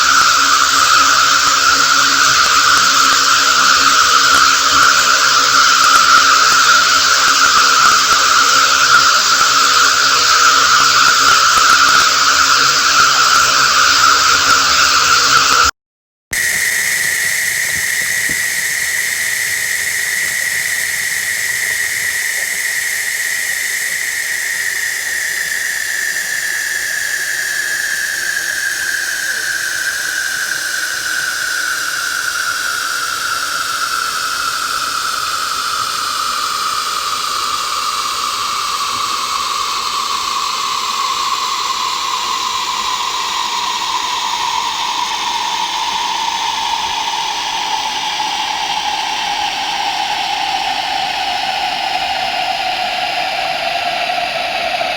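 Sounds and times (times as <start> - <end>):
processed water hiss: 0.0 - 15.7, 16.4 - 54.9
whistling tone gliding downward: 0.0 - 15.7, 16.3 - 54.9.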